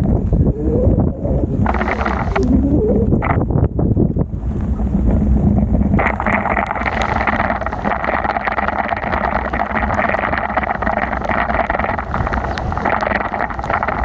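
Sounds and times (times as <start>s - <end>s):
wind rumbling on microphone: 0.0s - 14.0s
small ticks: 12.3s - 12.8s.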